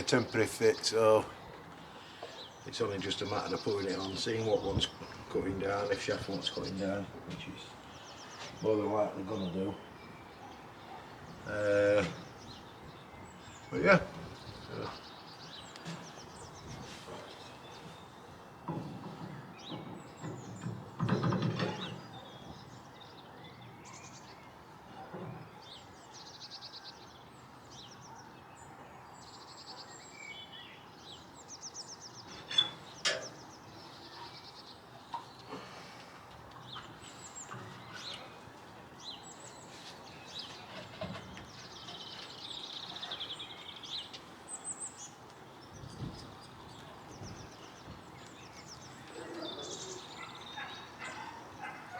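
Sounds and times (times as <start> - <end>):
small birds chirping and singing: 0.0 - 51.9.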